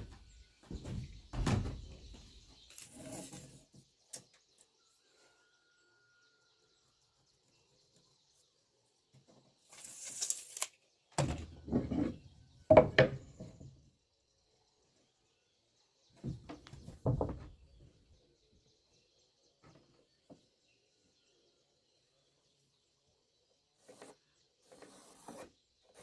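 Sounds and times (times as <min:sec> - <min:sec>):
wooden parts knocking: 0:12.7 - 0:13.7.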